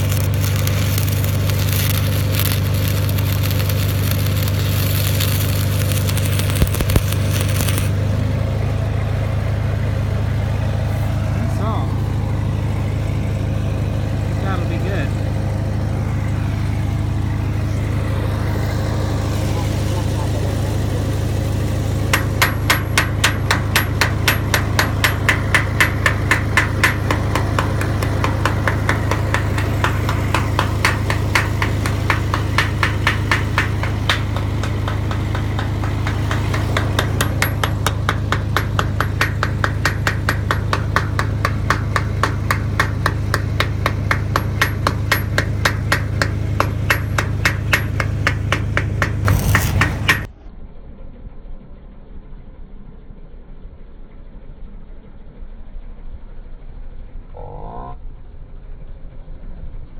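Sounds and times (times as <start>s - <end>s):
hammer tapping on metal: 0.0s - 7.9s, 22.1s - 50.3s
engine humming: 0.0s - 55.0s.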